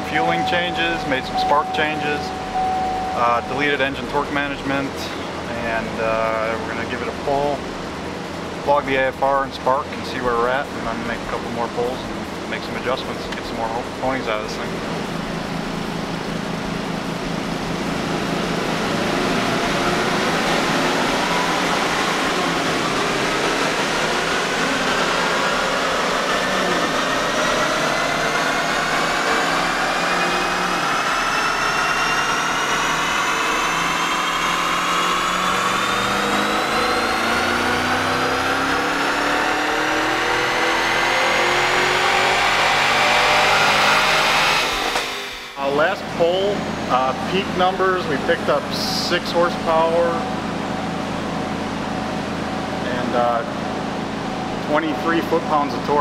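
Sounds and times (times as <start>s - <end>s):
engine revving up: 0.0s - 7.6s, 10.6s - 56.0s.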